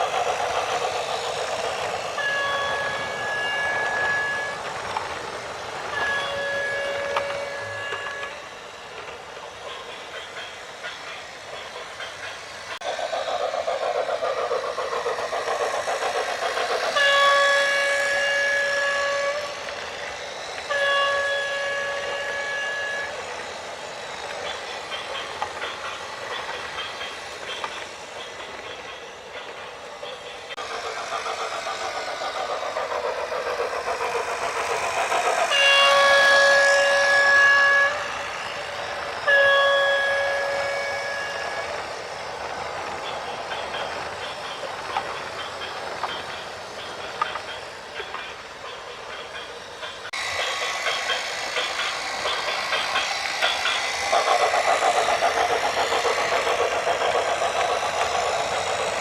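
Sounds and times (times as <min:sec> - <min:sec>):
loud horn blasts: 0:20.7 - 0:23.1, 0:35.5 - 0:38.1, 0:39.3 - 0:41.4.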